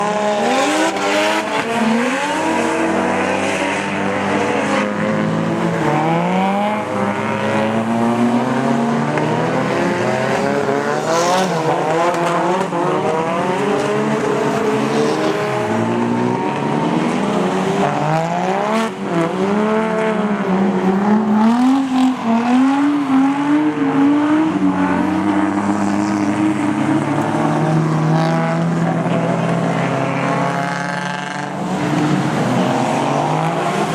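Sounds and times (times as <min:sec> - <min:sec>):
car engines revving hard: 0:00.0 - 0:33.9.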